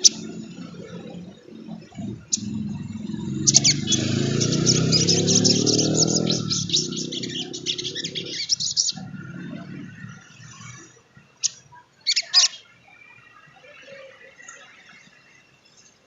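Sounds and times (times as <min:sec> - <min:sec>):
low droning sound: 0:00.0 - 0:10.9
bird chattering twitter: 0:00.0 - 0:12.7.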